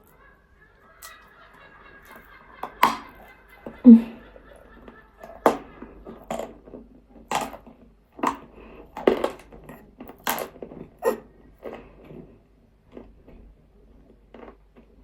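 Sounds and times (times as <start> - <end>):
crunching clay in the mouth: 5.2 - 6.6, 7.2 - 12.0.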